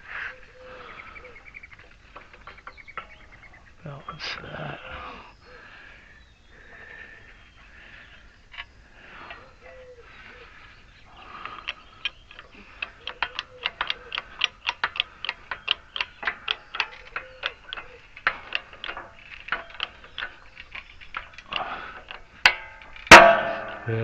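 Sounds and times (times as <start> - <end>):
ticking metallic clicks: 11.1 - 24.0
sharp metallic crack: 12.3 - 24.0.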